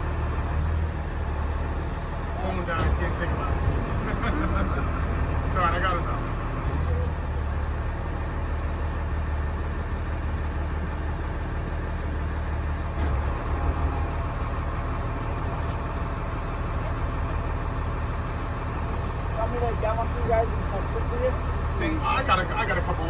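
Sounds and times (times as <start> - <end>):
large engine droning: 0.0 - 23.0.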